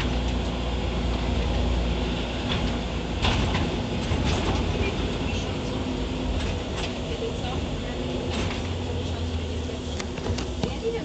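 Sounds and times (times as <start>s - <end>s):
bus diesel engine drone: 0.0s - 11.0s
road noise: 0.0s - 11.0s
rattles and knocks from bus body: 2.3s - 9.4s, 10.0s - 11.0s.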